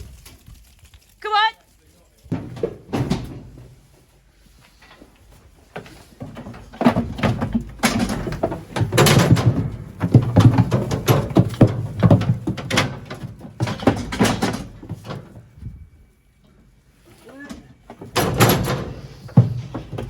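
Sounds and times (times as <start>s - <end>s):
metal gates rattling and banging: 2.3s - 3.8s, 5.8s - 15.5s, 17.3s - 20.0s.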